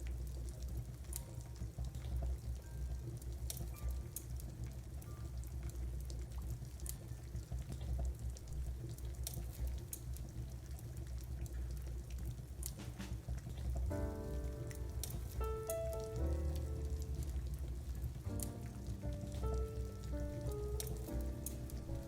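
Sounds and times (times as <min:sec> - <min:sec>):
steady rain: 0:00.0 - 0:22.0
wood fire crackling: 0:00.0 - 0:22.0.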